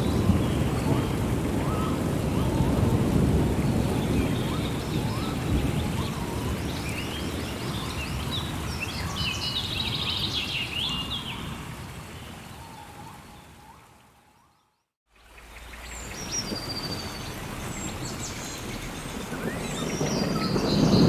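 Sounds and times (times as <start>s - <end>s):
thunder rumbling: 0.0s - 9.2s, 16.4s - 21.0s
rain: 0.0s - 21.0s
birds calling: 12.2s - 21.0s.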